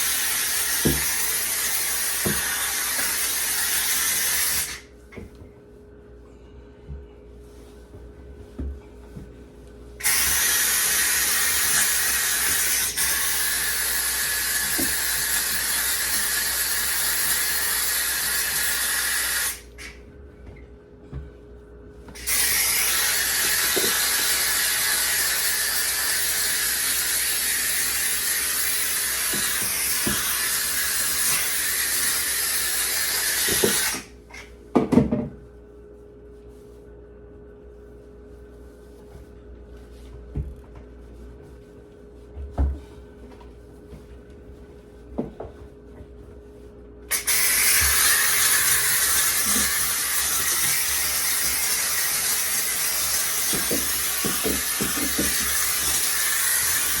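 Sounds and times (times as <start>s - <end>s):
steam cleaner hissing: 0.0s - 4.9s, 10.0s - 20.0s, 22.2s - 34.1s, 47.1s - 57.0s.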